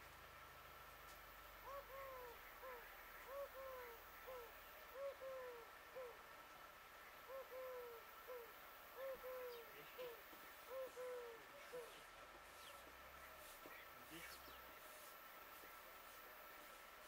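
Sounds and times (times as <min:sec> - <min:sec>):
bird hooting: 0:01.6 - 0:06.4, 0:07.0 - 0:12.8.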